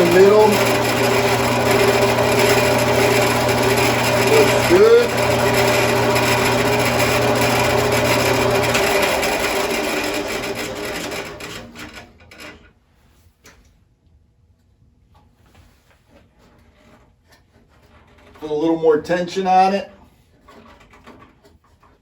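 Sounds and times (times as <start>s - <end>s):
bandsaw running and coasting down: 0.0s - 12.7s.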